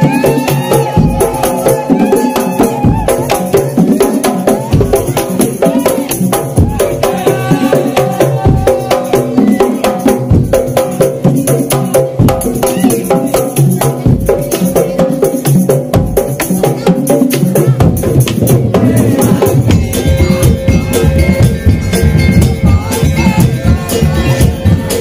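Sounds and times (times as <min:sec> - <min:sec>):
percussion ensemble with gongs: 0:00.0 - 0:25.0
pitched melody: 0:18.8 - 0:25.0.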